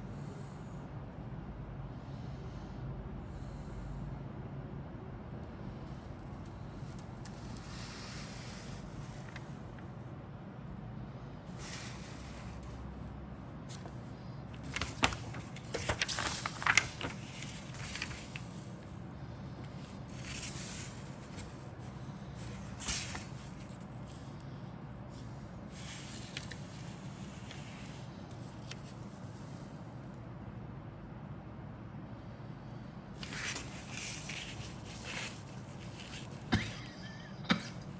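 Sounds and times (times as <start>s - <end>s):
plastic rustling: 14.6s - 18.7s, 33.2s - 36.5s.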